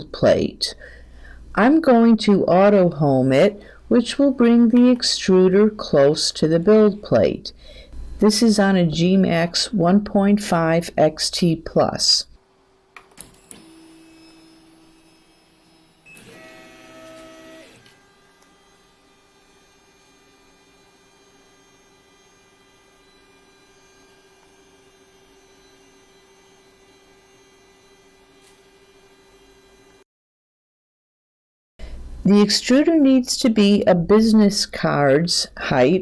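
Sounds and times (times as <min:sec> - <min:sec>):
stepper motors whining: 0:13.4 - 0:30.0.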